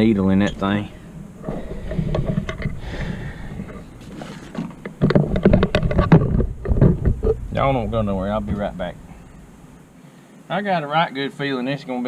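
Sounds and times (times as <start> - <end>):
hands handling hoses and parts: 3.6 - 7.4
low rumble: 4.8 - 9.8.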